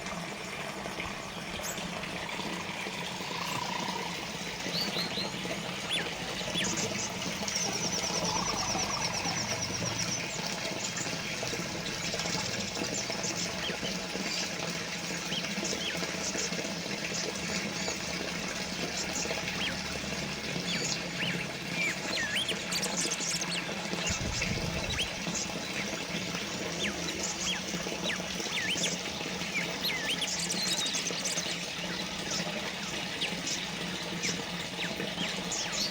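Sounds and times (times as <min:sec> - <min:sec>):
birds chirping: 0:00.0 - 0:35.9
water fountain trickling: 0:00.0 - 0:35.9
rapid bird trill: 0:01.4 - 0:35.9.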